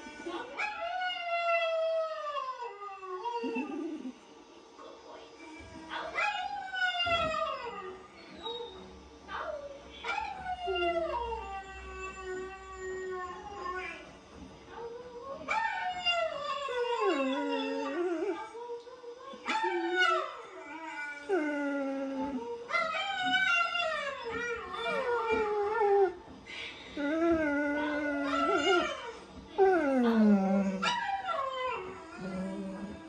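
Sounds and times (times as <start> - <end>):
dogs howling: 14.8 - 18.6, 19.4 - 26.3, 27.0 - 33.0.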